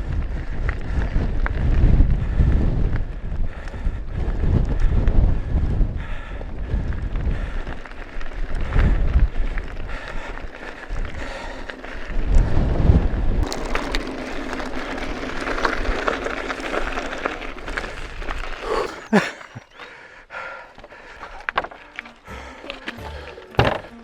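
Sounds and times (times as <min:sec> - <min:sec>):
wind buffeting microphone: 0:00.0 - 0:18.9
bike tyres rolling on rough track: 0:00.0 - 0:24.0.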